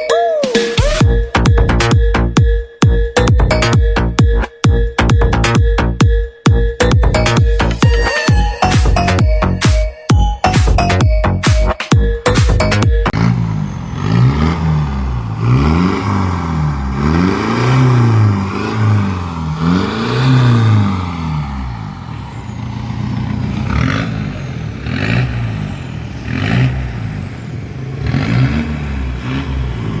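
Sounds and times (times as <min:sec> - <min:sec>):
car engine revving: 0:12.6 - 0:30.0.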